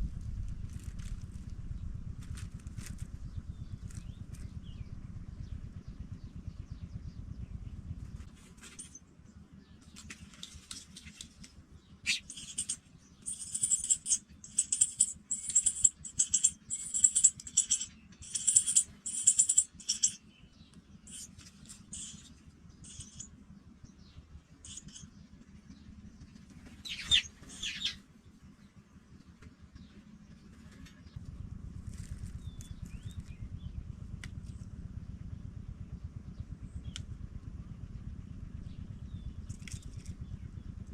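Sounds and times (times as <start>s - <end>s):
nestlings calling: 12.0s - 20.2s, 21.1s - 23.3s, 24.6s - 25.1s, 26.6s - 28.0s.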